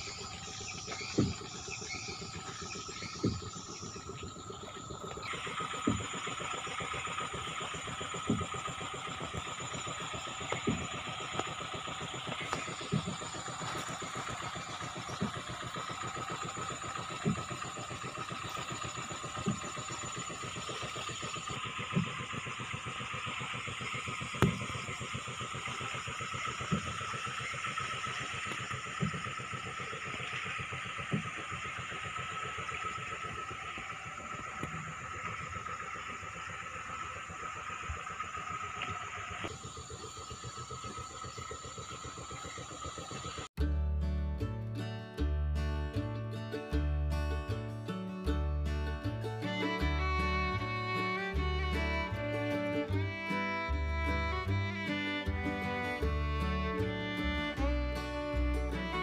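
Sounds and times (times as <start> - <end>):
motorboat engine running: 0.0 - 59.0.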